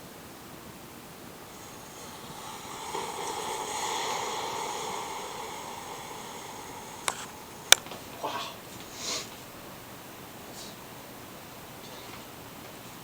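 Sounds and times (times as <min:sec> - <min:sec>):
coffee maker hissing: 0:01.2 - 0:09.7.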